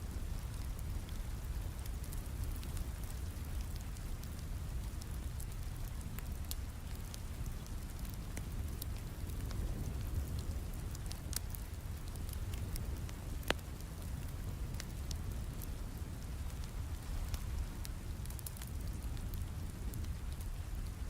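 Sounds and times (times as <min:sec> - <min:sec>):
fireplace fire crackling: 0:00.0 - 0:21.0
steady rain: 0:00.0 - 0:21.0.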